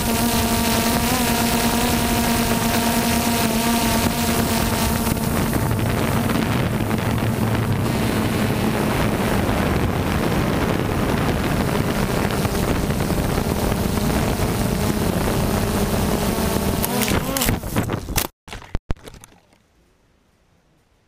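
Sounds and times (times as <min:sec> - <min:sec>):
drone propellers humming: 0:00.0 - 0:17.8
wind buffeting microphone: 0:01.9 - 0:18.2.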